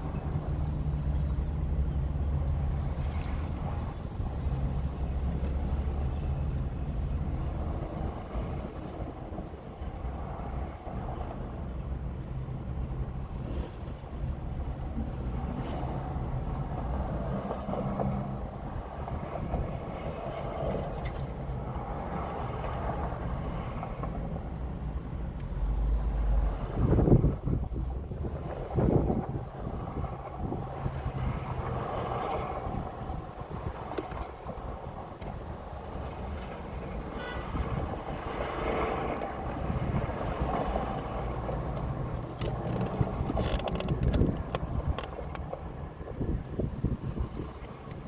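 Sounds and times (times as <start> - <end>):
faint clicks and rustles: 40.9 - 45.8.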